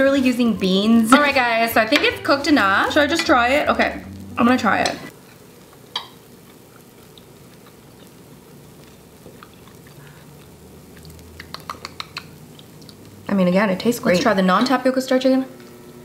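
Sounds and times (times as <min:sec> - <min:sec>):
person chewing softly: 0:05.1 - 0:13.2
small wet mouth clicks: 0:10.9 - 0:13.1.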